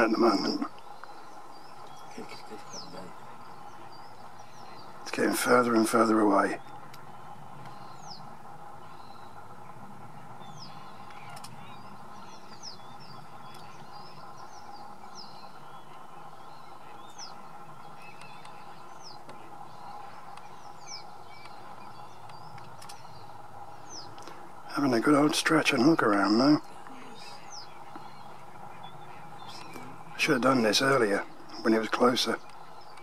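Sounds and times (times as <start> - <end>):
small birds calling: 0.0 - 33.0
steady low hum: 0.0 - 33.0
faint clicks: 11.0 - 11.7, 13.4 - 13.9, 18.0 - 20.6, 21.4 - 23.2.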